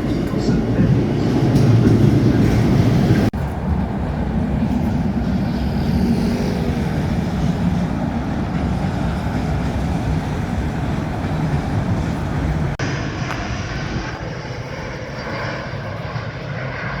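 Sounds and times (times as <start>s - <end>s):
heavy engine rumbling: 0.0s - 16.2s.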